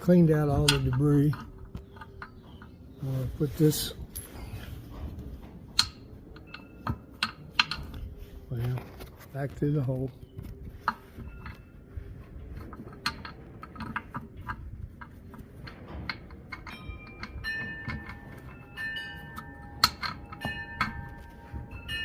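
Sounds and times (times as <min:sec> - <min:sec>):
clear ringing tones: 0:06.0 - 0:08.2, 0:16.7 - 0:22.0.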